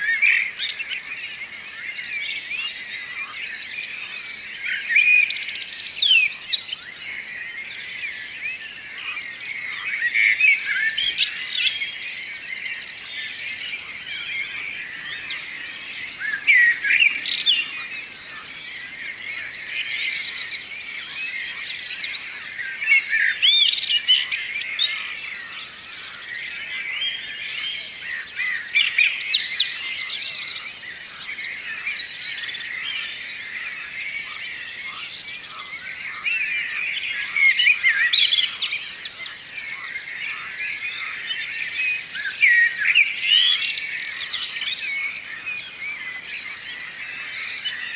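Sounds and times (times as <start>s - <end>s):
songbirds chirping and trilling: 0.0s - 47.9s.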